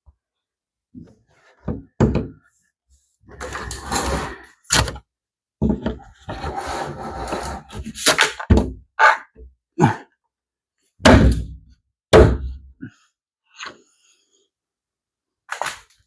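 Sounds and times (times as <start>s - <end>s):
plastic parts scraping and rustling: 3.3s - 5.0s.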